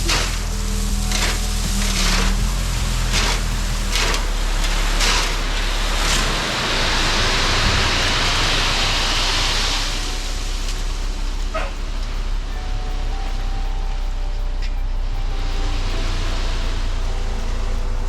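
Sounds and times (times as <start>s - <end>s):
stones knocking: 0.0s - 6.5s
dirt and gravel pouring: 0.0s - 18.0s
excavator engine running: 0.0s - 18.0s.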